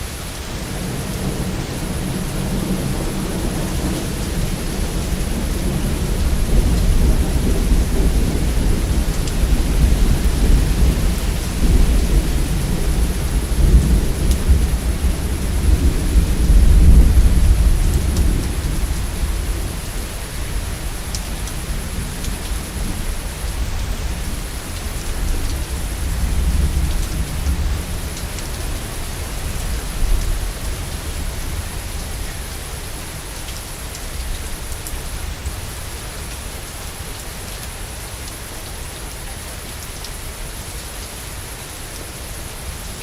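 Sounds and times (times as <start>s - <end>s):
heavy rain: 0.0s - 43.0s
thunder rumbling: 0.5s - 32.2s.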